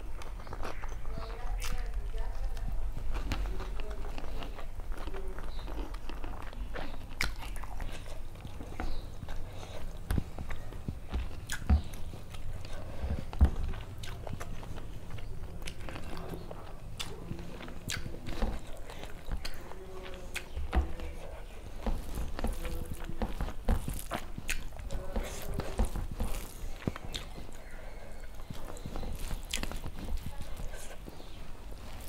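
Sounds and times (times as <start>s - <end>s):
person chewing food: 0.0s - 32.0s.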